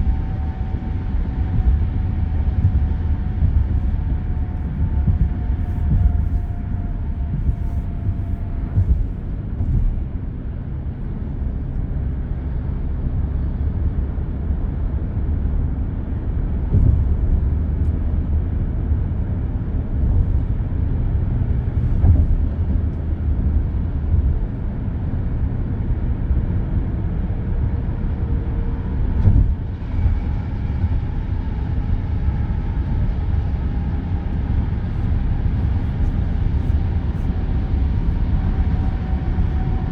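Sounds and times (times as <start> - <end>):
expressway traffic rumble: 0.0 - 39.9.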